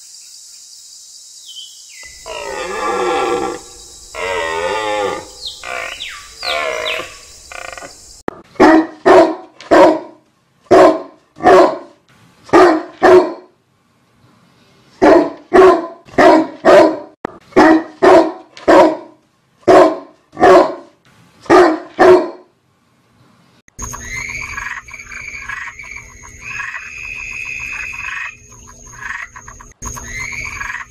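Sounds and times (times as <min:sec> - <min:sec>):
dog barking: 0:08.6 - 0:13.5, 0:15.0 - 0:22.5.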